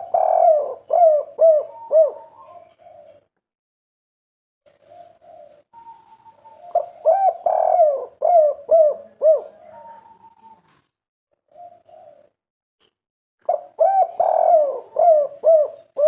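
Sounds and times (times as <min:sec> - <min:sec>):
dove cooing: 0:00.0 - 0:03.3, 0:04.7 - 0:10.7, 0:11.5 - 0:12.4, 0:13.4 - 0:16.0.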